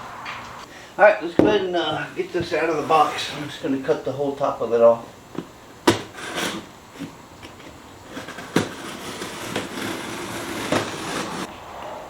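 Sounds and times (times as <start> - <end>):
blade cutting cardboard: 5.4 - 11.5.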